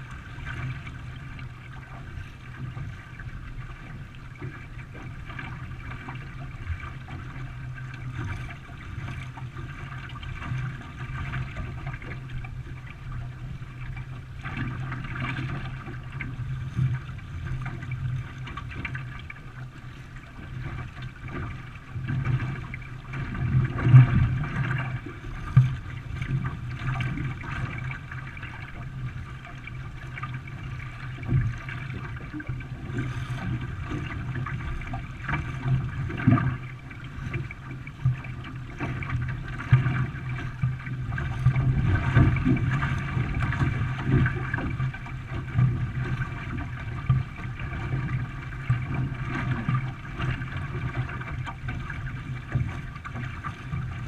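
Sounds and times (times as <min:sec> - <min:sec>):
paddles splashing water: 0:00.0 - 0:54.0.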